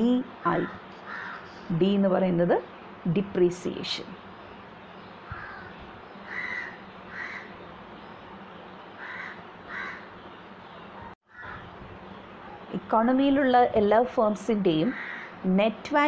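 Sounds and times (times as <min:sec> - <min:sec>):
bird calling: 0:00.5 - 0:01.7, 0:05.0 - 0:12.7, 0:14.8 - 0:15.4.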